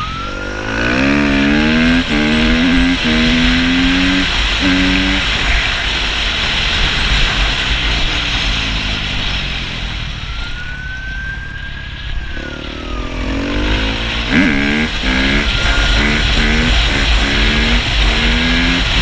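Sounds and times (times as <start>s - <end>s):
police siren wailing: 0.0s - 5.4s, 9.9s - 19.0s
dirt bike engine: 0.0s - 19.0s
wind and road noise: 0.0s - 19.0s.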